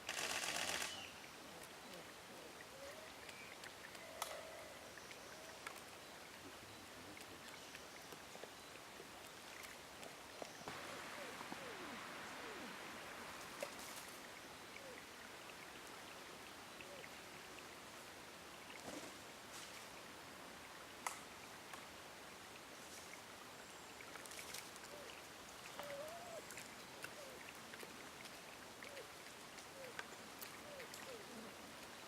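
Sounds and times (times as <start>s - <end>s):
steady outdoor hiss: 0.0s - 32.0s
sharp clicks: 0.1s - 1.0s
bird calling: 10.4s - 13.8s, 25.8s - 27.4s.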